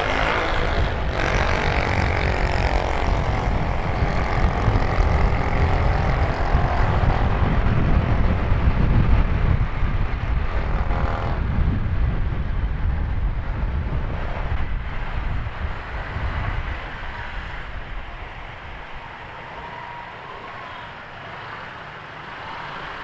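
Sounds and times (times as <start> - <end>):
scooter engine: 0.0 - 12.6
wind on microphone: 0.0 - 20.6.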